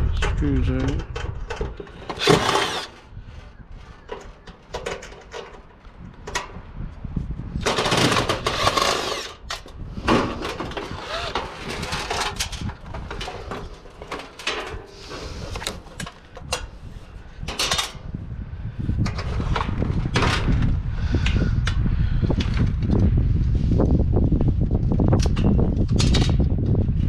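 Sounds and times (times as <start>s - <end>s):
power driver backing out screws: 1.8s - 3.1s, 7.7s - 9.7s, 10.4s - 12.7s, 15.4s - 16.2s
metal parts rattling: 2.0s - 3.0s, 10.5s - 14.8s.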